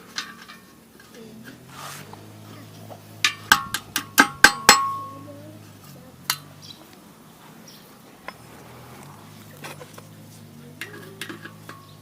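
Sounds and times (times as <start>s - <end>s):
steel parts clinking: 0.0s - 1.6s, 3.2s - 5.2s.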